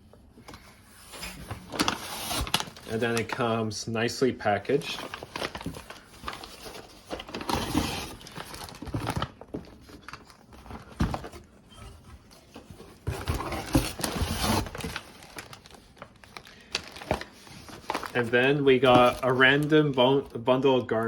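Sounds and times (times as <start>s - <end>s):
plastic packaging crinkling: 1.6s - 3.5s, 4.6s - 11.4s, 13.0s - 21.0s.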